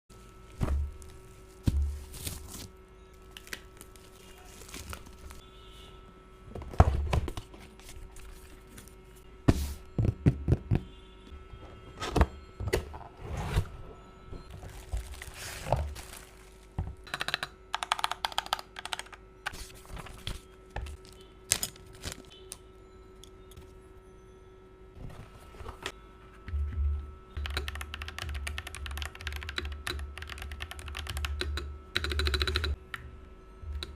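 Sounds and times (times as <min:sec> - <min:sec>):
typing on mechanical keyboard: 0:17.1 - 0:19.2, 0:27.4 - 0:32.8.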